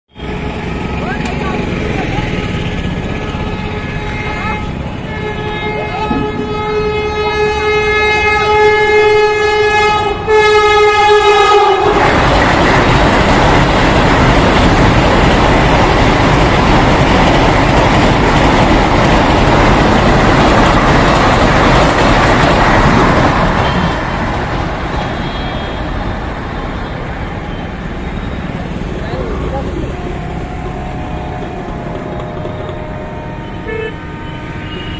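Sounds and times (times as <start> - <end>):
train horn blast: 0.1 - 1.0, 2.3 - 12.2, 29.9 - 34.9
train rushing past: 0.2 - 34.9.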